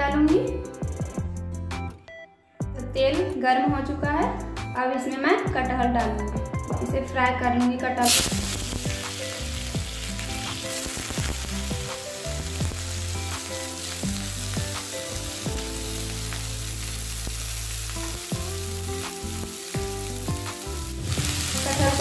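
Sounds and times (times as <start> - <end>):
food sizzling in oil: 8.0 - 22.0.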